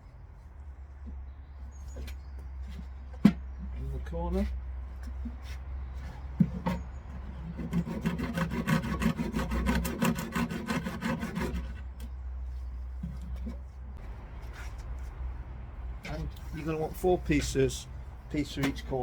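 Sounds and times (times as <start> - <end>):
rapid scraping on wood: 5.1 - 12.1.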